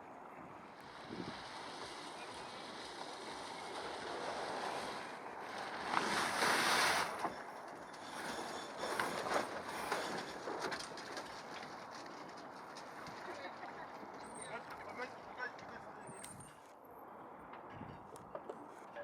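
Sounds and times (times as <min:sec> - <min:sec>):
water rushing along boat hull: 0:00.8 - 0:08.2
wind on microphone: 0:00.9 - 0:01.6.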